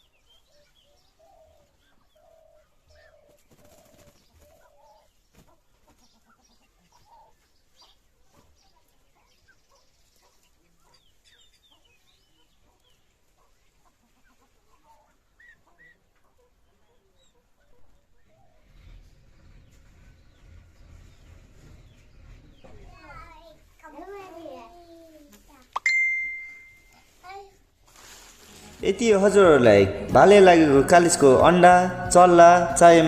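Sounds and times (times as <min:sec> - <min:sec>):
short high chirps: 0:25.8 - 0:27.1.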